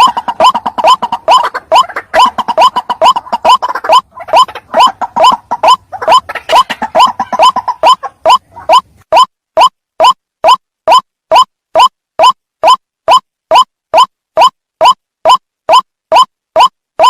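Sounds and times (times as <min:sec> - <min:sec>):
bird croaking calls: 0:00.0 - 0:08.9.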